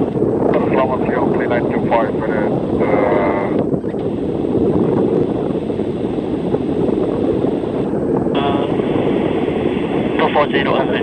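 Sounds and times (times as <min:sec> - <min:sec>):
jet engines rumbling: 0:00.0 - 0:11.0
radio hiss: 0:00.5 - 0:04.4, 0:07.4 - 0:11.0
radio transmission: 0:00.5 - 0:04.4, 0:05.5 - 0:11.0.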